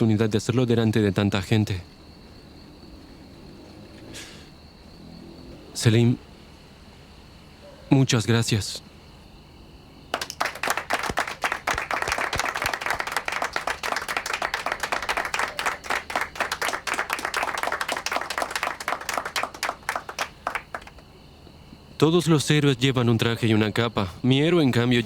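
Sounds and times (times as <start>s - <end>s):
people clapping: 10.1s - 21.0s.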